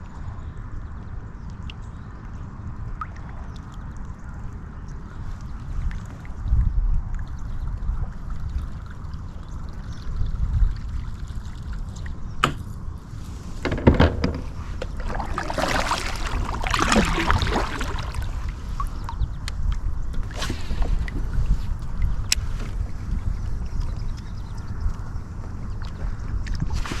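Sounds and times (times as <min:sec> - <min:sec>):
steady low rumble: 0:00.0 - 0:27.0
water splashing and trickling: 0:01.4 - 0:27.0.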